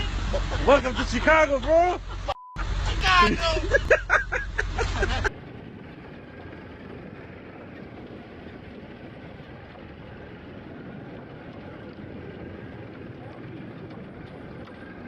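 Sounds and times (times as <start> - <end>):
vehicle in motion hum: 0.0 - 15.0
men talking: 0.5 - 2.2, 3.0 - 4.3.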